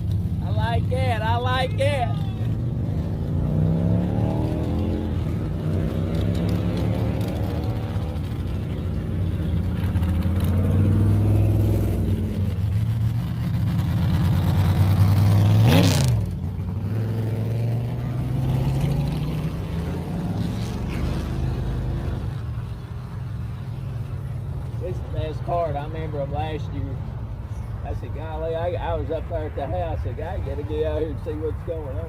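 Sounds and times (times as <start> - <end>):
car engines rumbling: 0.0 - 32.0
car passing close by: 9.6 - 22.5.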